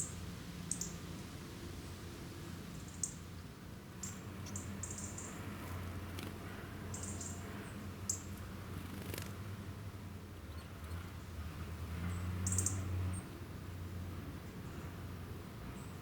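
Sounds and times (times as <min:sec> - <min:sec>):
small birds chirping: 0:00.0 - 0:01.0, 0:02.7 - 0:03.2, 0:04.0 - 0:09.4, 0:10.3 - 0:11.4, 0:12.0 - 0:13.4.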